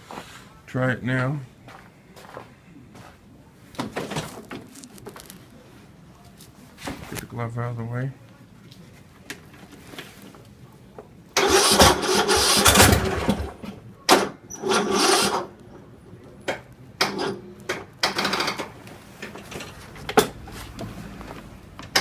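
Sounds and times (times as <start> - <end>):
engine starter cranking: 11.4 - 15.5.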